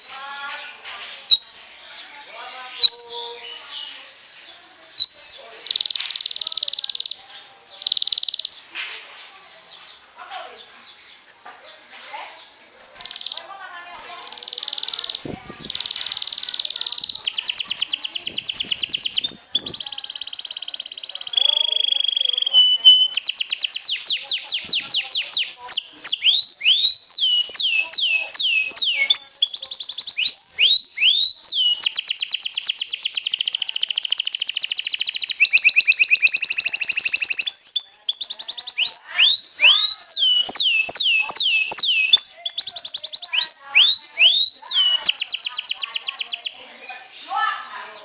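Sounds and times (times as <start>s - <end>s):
canary singing: 0.0s - 8.8s, 9.4s - 48.0s.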